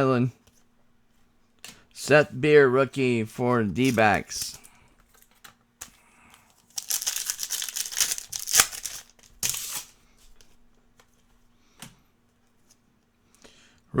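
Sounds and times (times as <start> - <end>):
foil wrapper tearing and crinkling: 6.6 - 10.0.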